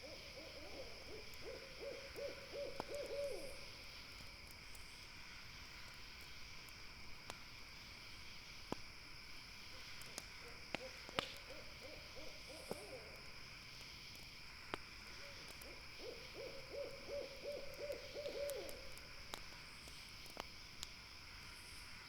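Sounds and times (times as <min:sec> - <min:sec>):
owl hooting trills: 0:00.0 - 0:03.6, 0:10.8 - 0:13.2, 0:15.2 - 0:19.0
campfire crackling: 0:00.0 - 0:22.0.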